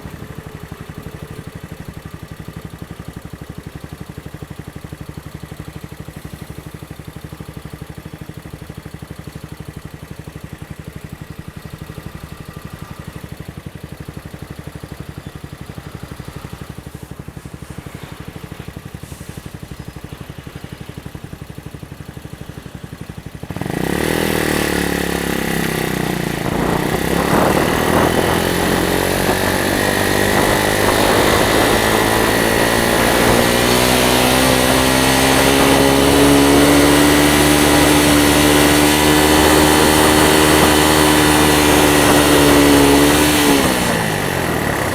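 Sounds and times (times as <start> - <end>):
motorcycle engine idling and accelerating: 0.0 - 44.9.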